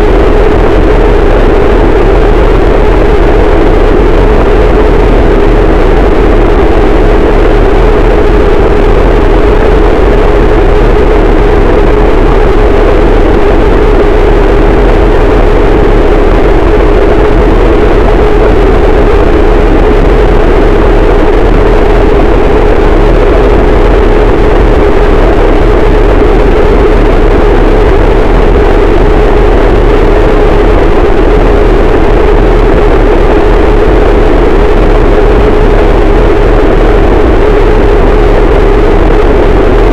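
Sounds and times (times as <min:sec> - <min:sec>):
harsh distorted noise wall: 0:00.0 - 0:39.9.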